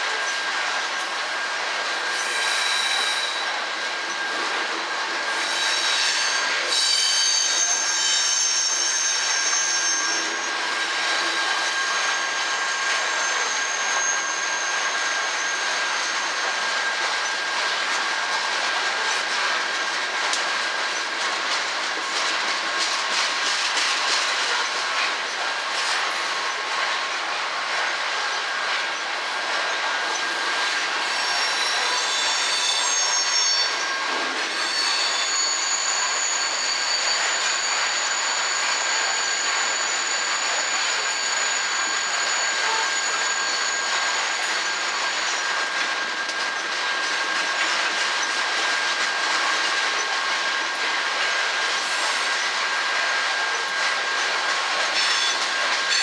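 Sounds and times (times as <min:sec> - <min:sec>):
train cars rolling on rails: 0:00.0 - 0:56.0
high wheel squeal: 0:02.0 - 0:04.5, 0:05.3 - 0:17.4, 0:29.6 - 0:48.8, 0:53.1 - 0:56.0.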